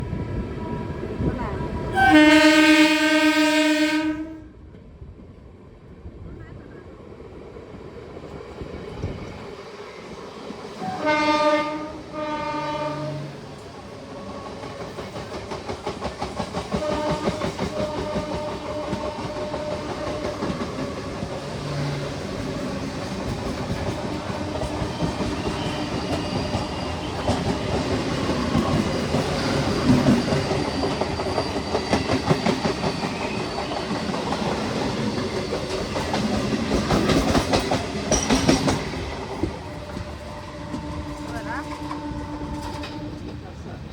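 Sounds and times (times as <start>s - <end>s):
train horn blasts: 1.9s - 4.6s, 10.8s - 13.4s, 16.7s - 20.4s, 39.8s - 43.3s
wheels clacking over rail joints: 14.3s - 43.9s.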